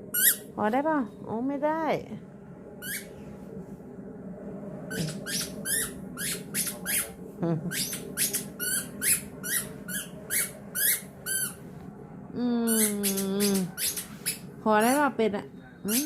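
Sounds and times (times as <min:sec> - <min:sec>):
dog chewing squeaky toy: 0:07.8 - 0:11.6
rubber toy squeaks: 0:07.8 - 0:11.6.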